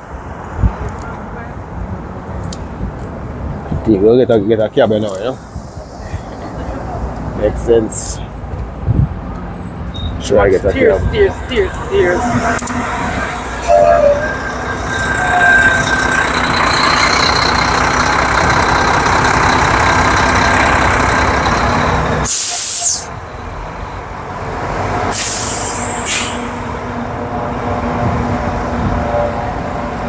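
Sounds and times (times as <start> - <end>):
heavy vehicle running: 0.0 - 30.0
street traffic: 0.0 - 30.0
air brakes hissing: 22.0 - 23.2, 25.1 - 26.7.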